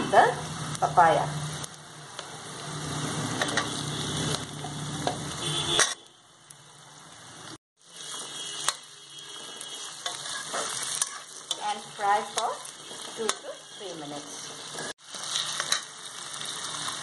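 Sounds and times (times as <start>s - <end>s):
onions sizzling in oil: 0.1s - 17.0s
metal spatula scraping a wok: 8.0s - 17.0s.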